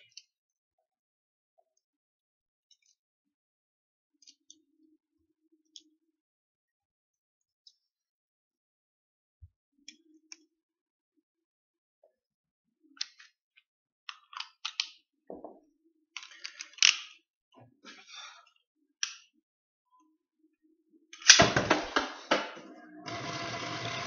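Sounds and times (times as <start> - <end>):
plastic toy parts clicking: 14.1 - 15.0, 16.2 - 17.2.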